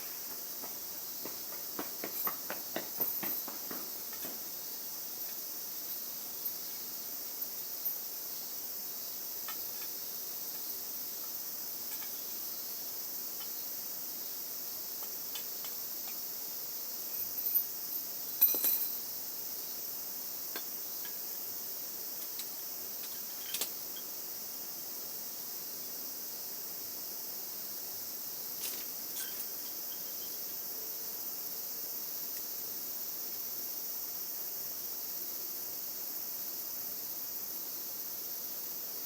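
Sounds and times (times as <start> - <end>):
crickets chirping: 0.0 - 39.0
light clinks and knocks: 0.2 - 4.6, 17.1 - 19.2, 22.2 - 24.2, 28.6 - 30.6.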